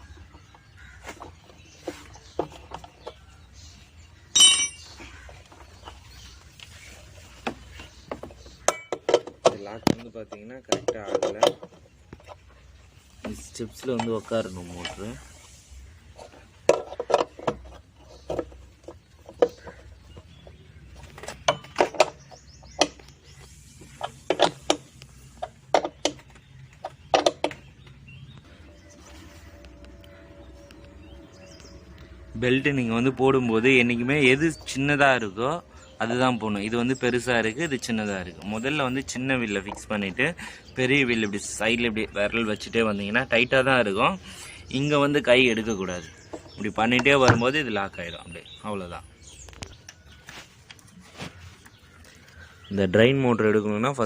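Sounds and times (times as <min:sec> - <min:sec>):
loud bright metallic clink: 0:04.3 - 0:04.9
metal tools clinking and tapping: 0:04.3 - 0:05.1, 0:08.7 - 0:09.6
hard parts knocking: 0:04.3 - 0:05.9, 0:07.4 - 0:12.5, 0:16.6 - 0:23.1, 0:23.9 - 0:28.0, 0:46.2 - 0:47.8.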